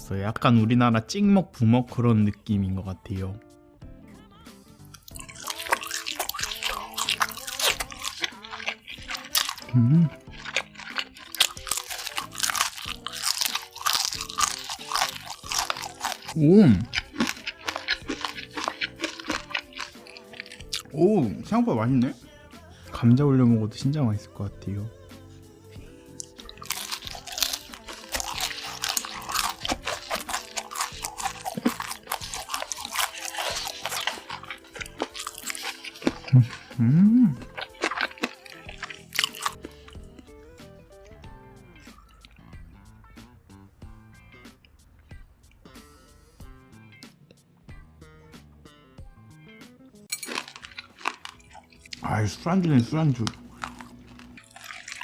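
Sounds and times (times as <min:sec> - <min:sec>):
soft background music: 0:00.0 - 0:55.0
crisp food crunching: 0:04.9 - 0:20.9, 0:26.2 - 0:40.3, 0:50.1 - 0:55.0.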